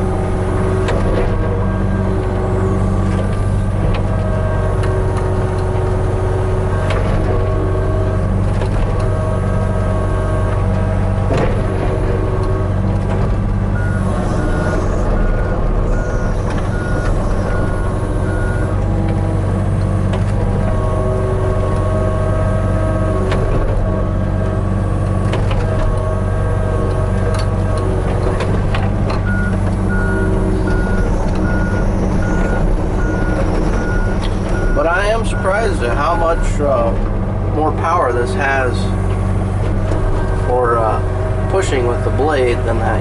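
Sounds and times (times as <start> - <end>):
excavator diesel engine running: 0.0 - 43.0
travel alarm beeping: 29.3 - 34.8.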